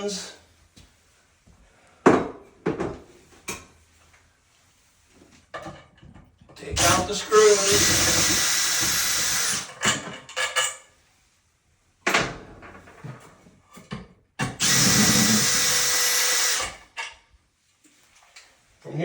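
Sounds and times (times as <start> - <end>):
power drill running: 6.8 - 9.8, 14.5 - 16.8.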